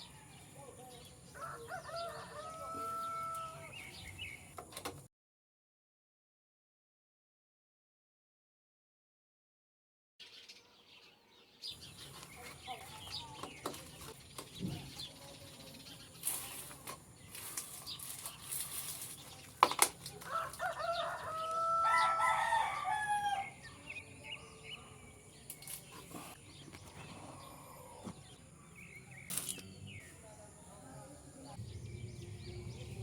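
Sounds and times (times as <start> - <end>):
rooster crowing: 1.4 - 3.8, 20.2 - 23.6.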